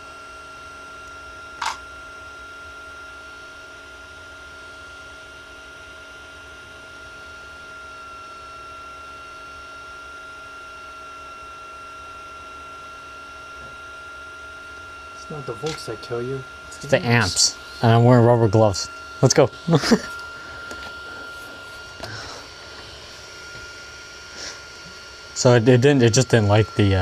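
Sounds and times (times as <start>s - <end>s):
electrical hum: 0.0s - 27.0s
thin high whine: 10.9s - 27.0s
sharp click: 15.6s - 15.9s.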